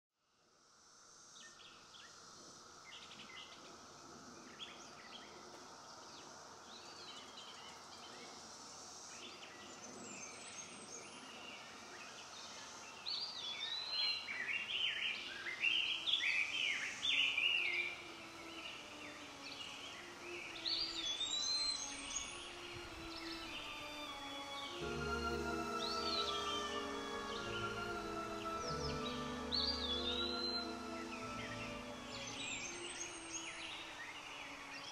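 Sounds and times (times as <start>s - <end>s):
steady outdoor hiss: 0.2s - 34.9s
songbirds singing: 1.4s - 34.9s.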